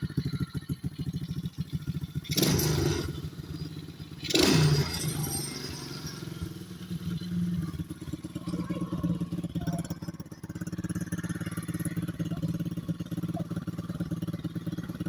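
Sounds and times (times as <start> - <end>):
small gasoline engine idling: 0.0 - 15.0
engine revving: 1.2 - 15.0.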